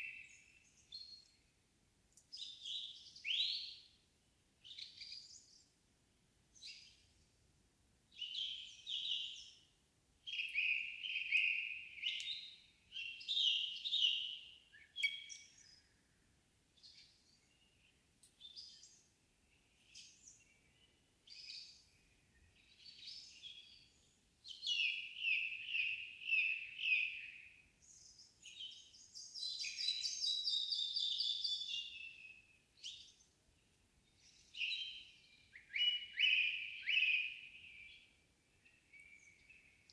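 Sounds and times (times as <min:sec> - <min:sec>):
songbirds singing: 0:00.0 - 0:04.0, 0:04.6 - 0:05.8, 0:08.1 - 0:16.2, 0:16.8 - 0:39.9
bird trill: 0:10.3 - 0:15.7.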